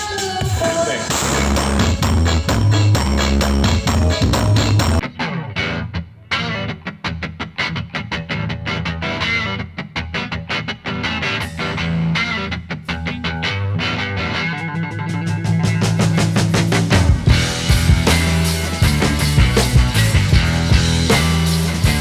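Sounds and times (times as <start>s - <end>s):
distorted electric guitar music: 0.0s - 22.0s
heavy bass: 1.1s - 5.0s, 15.7s - 22.0s.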